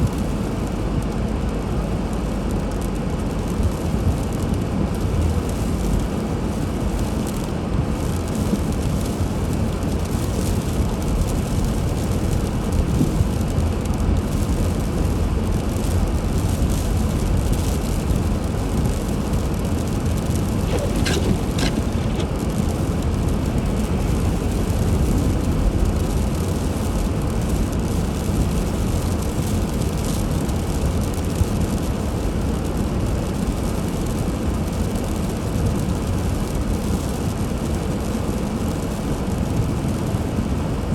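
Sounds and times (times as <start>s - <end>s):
road and engine rumble: 0.0s - 40.9s
brief high squeak: 20.6s - 22.3s.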